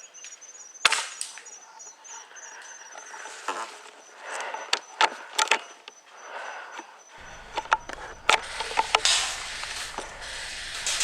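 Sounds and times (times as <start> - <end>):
rustling: 7.2 - 11.0
sharp clicks: 7.2 - 11.0.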